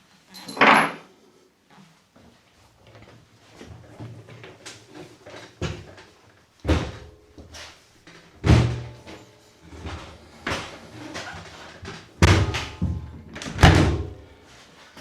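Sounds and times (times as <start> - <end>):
door knocks and thuds: 6.7 - 7.1, 8.4 - 9.0, 12.2 - 14.2.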